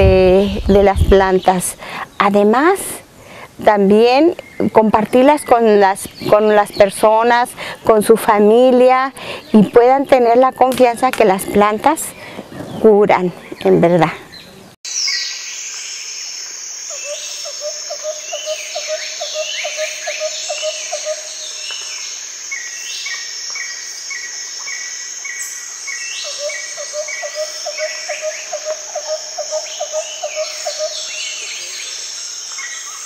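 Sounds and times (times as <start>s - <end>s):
birds singing and calling: 0.0s - 33.0s
high insect drone: 14.9s - 33.0s.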